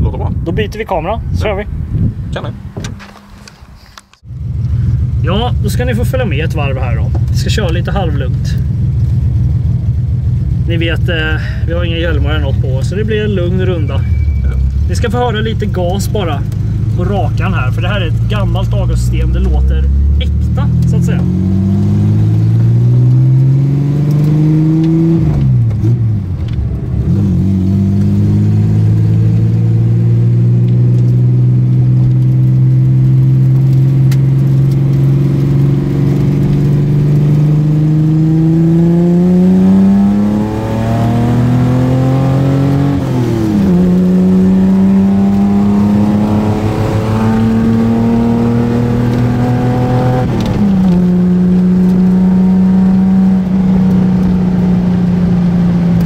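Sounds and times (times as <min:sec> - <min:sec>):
car engine revving through gears: 0:11.7 - 0:56.0.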